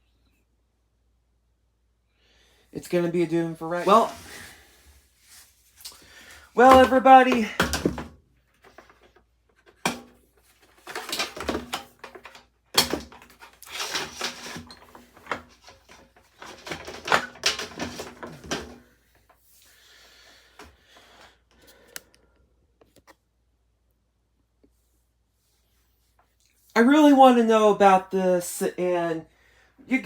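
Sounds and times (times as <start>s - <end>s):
hard parts knocking and rattling: 6.6s - 9.1s, 9.7s - 18.8s.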